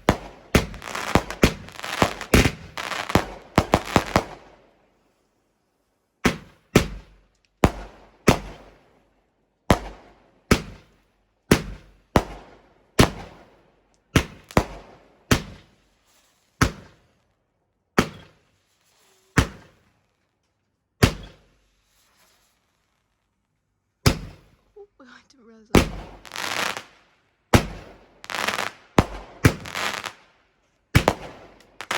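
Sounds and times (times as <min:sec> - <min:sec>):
fireworks bangs: 0:00.0 - 0:04.7, 0:06.2 - 0:09.0, 0:09.7 - 0:17.2, 0:18.0 - 0:20.2, 0:21.0 - 0:22.7, 0:24.0 - 0:30.3, 0:30.9 - 0:31.9.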